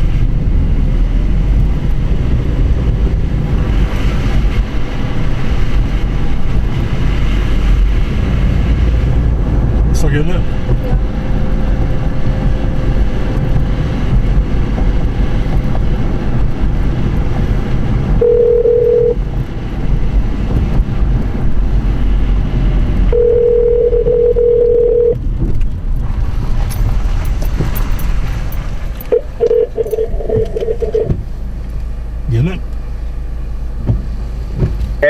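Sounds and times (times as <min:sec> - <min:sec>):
vehicle rumble: 0:00.0 - 0:35.0
wind rumble: 0:00.0 - 0:35.0
phone ringing tone: 0:18.2 - 0:19.2, 0:23.2 - 0:25.2, 0:29.1 - 0:31.1
short broken beeps: 0:29.1 - 0:31.1.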